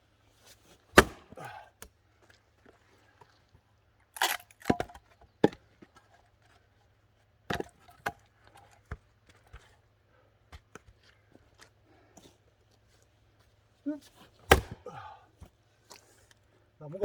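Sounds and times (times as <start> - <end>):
axe chopping log: 0.9 - 1.6, 4.2 - 5.6, 7.5 - 8.2, 14.5 - 14.9
wood cracking: 4.2 - 4.9.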